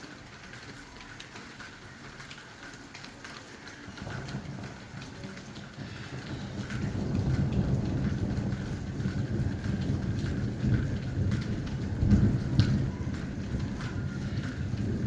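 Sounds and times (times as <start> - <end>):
steady rain: 0.0 - 15.0
thunder rumbling: 3.9 - 15.0.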